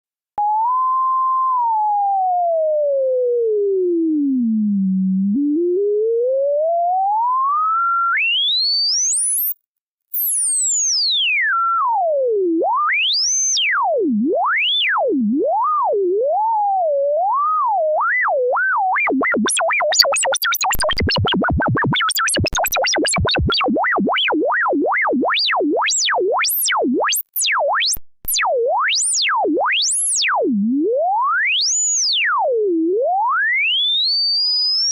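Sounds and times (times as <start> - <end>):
electronic tone gliding in pitch: 18.9 - 28.5.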